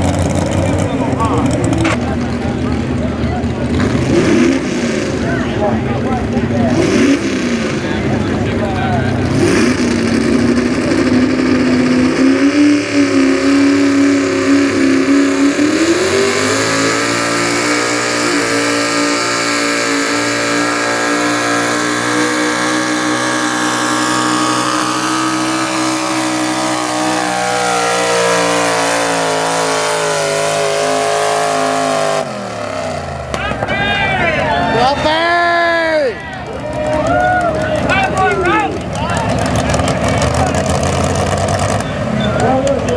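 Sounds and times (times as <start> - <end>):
truck engine at high revs: 0.0 - 42.9.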